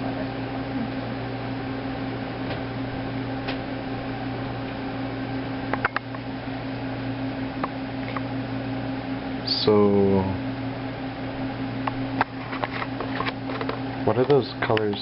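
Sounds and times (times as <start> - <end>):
electrical hum and fan noise: 0.0 - 15.0.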